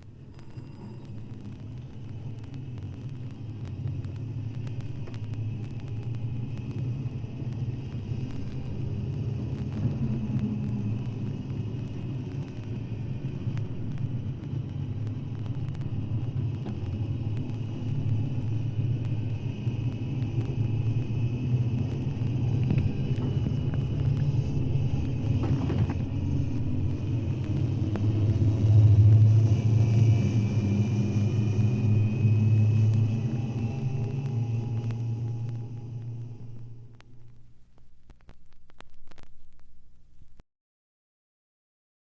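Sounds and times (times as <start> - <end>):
faint clicks: 0.0 - 21.2, 32.8 - 40.4
low steady rumble: 0.0 - 40.4.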